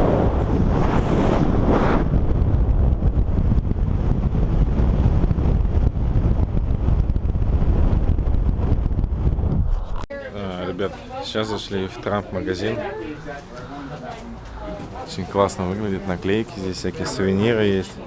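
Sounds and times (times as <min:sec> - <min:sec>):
wind buffeting microphone: 0:00.0 - 0:10.1.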